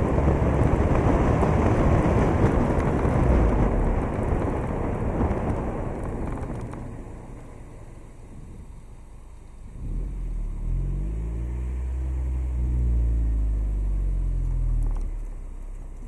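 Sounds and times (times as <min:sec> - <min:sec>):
wind rumble on microphone: 0:00.0 - 0:08.9
car engine accelerating: 0:00.0 - 0:16.0.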